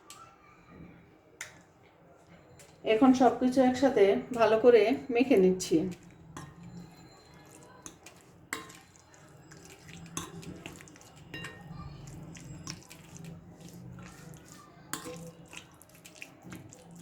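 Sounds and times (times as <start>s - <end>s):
wet squelching of chicken in marinade: 5.7s - 17.0s.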